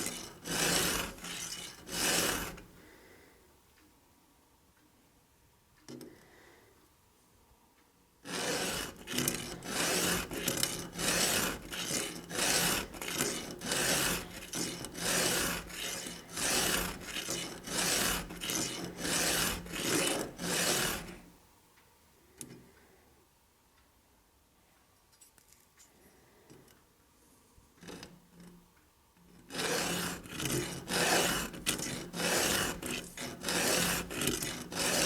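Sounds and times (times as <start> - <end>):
hand file rasping on chain: 0.0 - 2.8, 8.3 - 21.3, 29.5 - 35.0.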